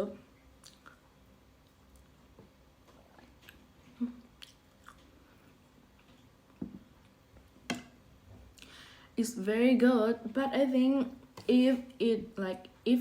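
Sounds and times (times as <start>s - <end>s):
eating mouth sounds: 0.6s - 1.1s, 2.9s - 5.2s.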